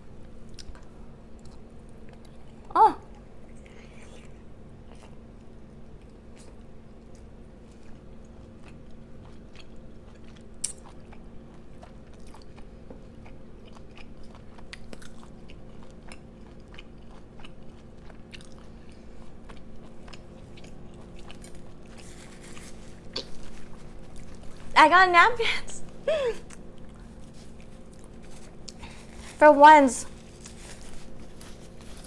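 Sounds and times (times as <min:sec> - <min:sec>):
chewing and wet mouth clicks: 0:00.5 - 0:02.5, 0:04.0 - 0:22.0.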